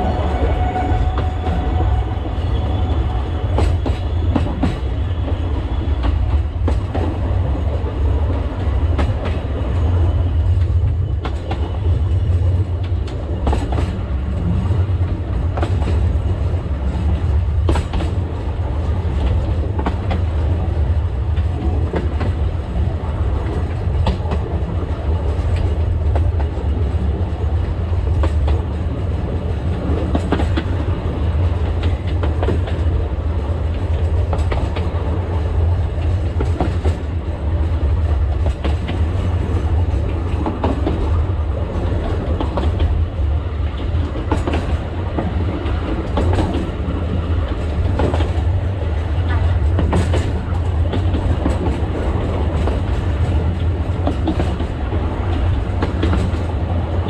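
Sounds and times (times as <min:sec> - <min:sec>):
train low rumble: 0:00.0 - 0:57.0.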